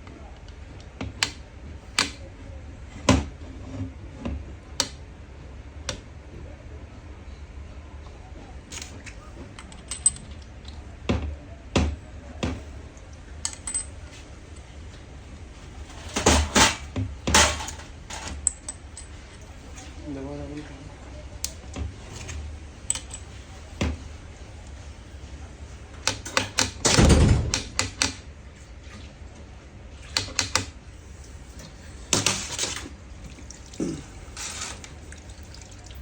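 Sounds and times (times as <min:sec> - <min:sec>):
metal tools clinking and knocking: 0:09.6 - 0:10.4, 0:13.4 - 0:13.9, 0:17.4 - 0:19.5.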